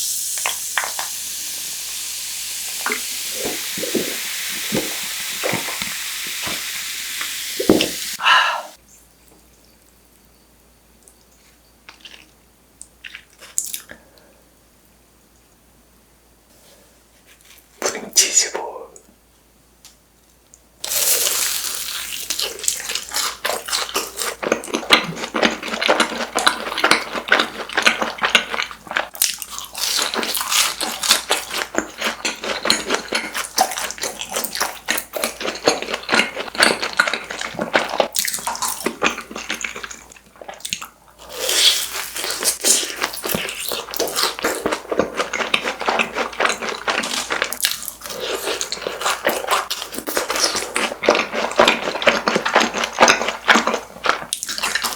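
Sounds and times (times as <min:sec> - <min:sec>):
crunching and chewing food: 0:11.0 - 0:14.1, 0:20.8 - 0:54.9.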